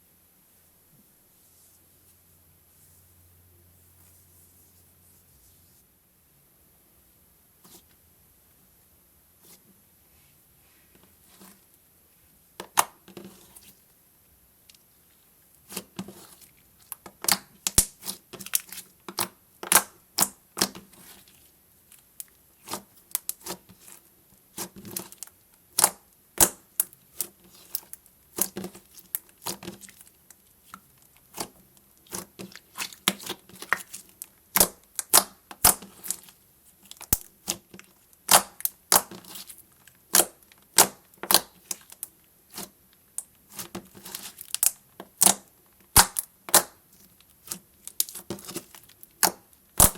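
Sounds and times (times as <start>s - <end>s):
slime squeezed crackling pops: 49.2s - 49.9s.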